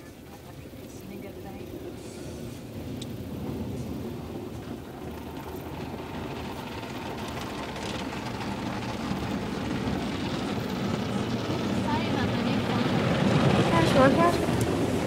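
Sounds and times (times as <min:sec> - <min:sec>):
car wash machinery rumbling: 0:00.0 - 0:15.0.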